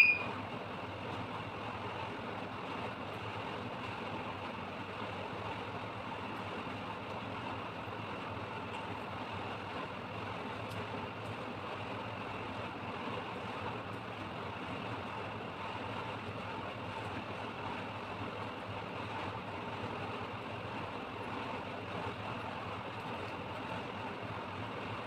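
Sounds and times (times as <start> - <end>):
mechanical hum: 0.0 - 4.4.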